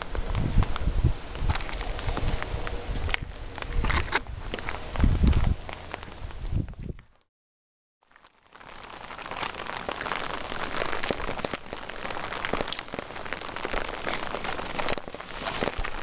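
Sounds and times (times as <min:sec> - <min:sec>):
rain drops ticking: 0:00.0 - 0:03.7, 0:04.5 - 0:07.3, 0:08.0 - 0:16.0
steady rain hiss: 0:08.4 - 0:16.0.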